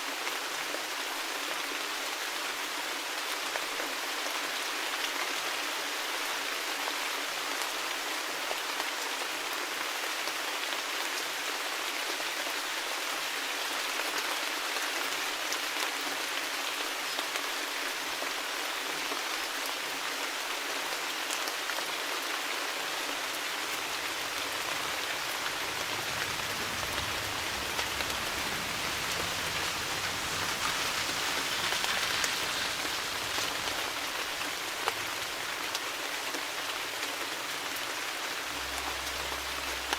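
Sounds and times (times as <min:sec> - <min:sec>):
steady rain falling: 0:00.0 - 0:39.9
faint low rumble: 0:23.2 - 0:39.9.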